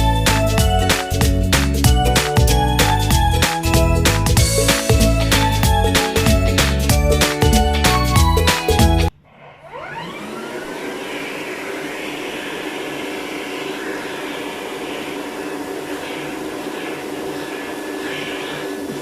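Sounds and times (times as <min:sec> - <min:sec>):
vacuum cleaner motor whining: 0:09.4 - 0:19.0.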